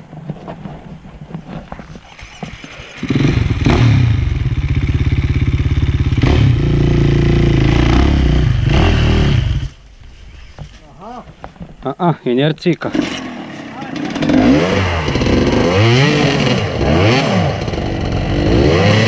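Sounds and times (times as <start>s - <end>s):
dirt bike engine revving: 2.0s - 9.8s, 12.8s - 19.0s.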